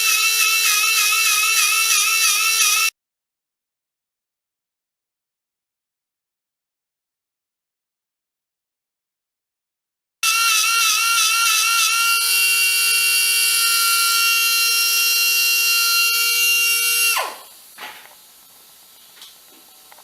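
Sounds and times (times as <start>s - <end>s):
power tool motor whining: 0.0s - 2.9s, 10.2s - 17.5s.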